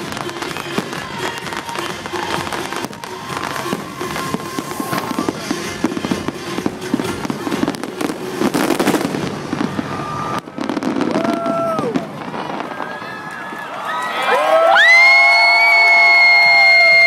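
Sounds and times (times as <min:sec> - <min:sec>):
show music: 0:00.0 - 0:12.6
fireworks bangs and crackles: 0:00.0 - 0:13.8.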